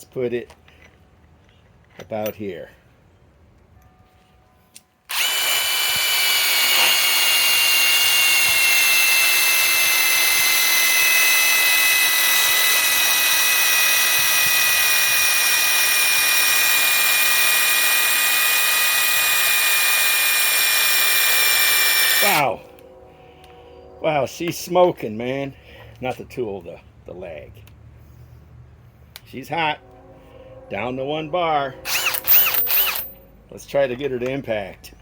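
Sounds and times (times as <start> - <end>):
impact wrench whining: 5.1 - 22.5, 31.9 - 33.2.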